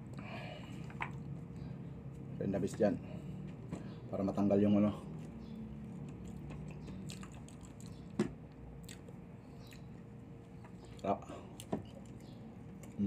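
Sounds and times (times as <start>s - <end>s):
low steady hum: 0.0s - 13.0s
person chewing banana: 5.0s - 13.0s
wet mouth clicks: 8.8s - 9.9s.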